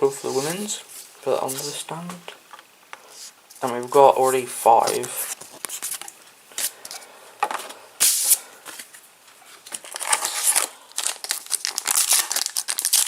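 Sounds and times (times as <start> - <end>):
cards rustling: 0.0 - 13.0
foil packet crinkling: 4.8 - 7.0, 8.7 - 13.0
foil packet tearing: 9.7 - 13.0.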